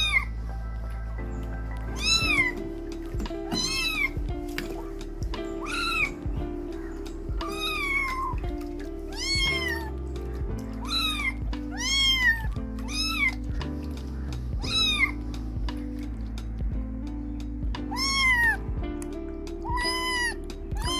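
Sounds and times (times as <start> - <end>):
kittens meowing: 0.0 - 0.4, 1.9 - 2.6, 3.2 - 4.4, 5.4 - 15.8, 17.8 - 18.6, 19.6 - 20.9
background music: 0.0 - 20.9.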